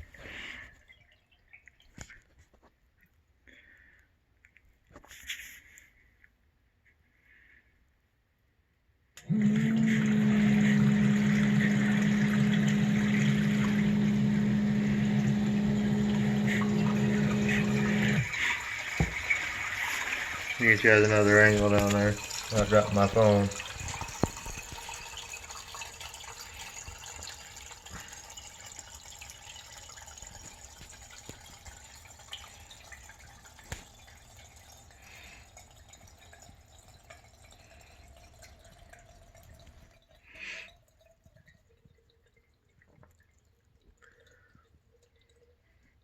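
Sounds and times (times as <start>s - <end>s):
faint water drips: 0.0s - 6.4s, 9.2s - 46.0s
water splashing in pump pit: 9.2s - 46.0s.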